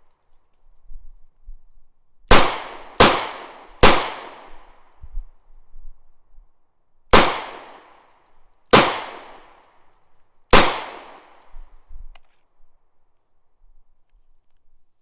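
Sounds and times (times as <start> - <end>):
gunshots with echo: 2.3 - 4.6, 7.2 - 7.9, 8.8 - 9.5, 10.6 - 11.4.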